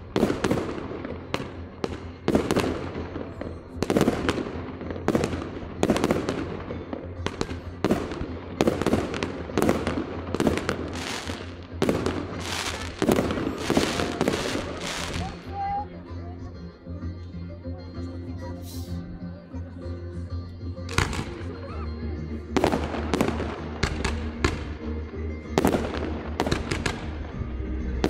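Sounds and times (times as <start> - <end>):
fireworks bursting: 0.0 - 15.5, 20.9 - 21.6, 22.6 - 28.0
music: 0.0 - 28.0.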